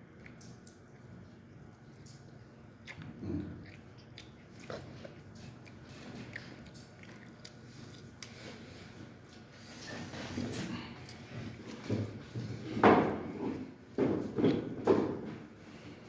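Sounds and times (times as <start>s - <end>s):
chewing chicken: 0.0s - 12.6s.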